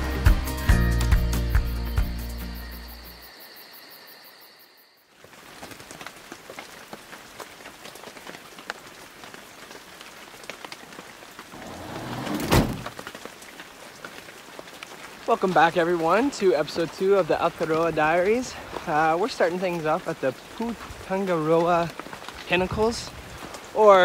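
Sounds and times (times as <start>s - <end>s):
music: 0.0s - 3.4s
rain pattering: 5.0s - 24.0s
loud thump: 12.3s - 12.9s.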